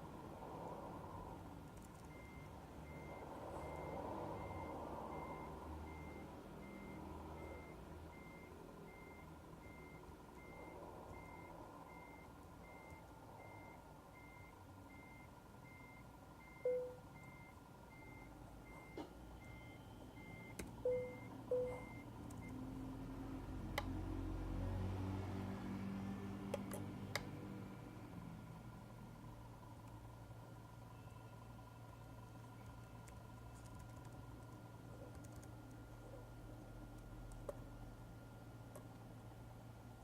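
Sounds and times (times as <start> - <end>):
low-pitched beeps: 2.1 - 22.1
truck reversing alarm beeping: 2.1 - 22.8.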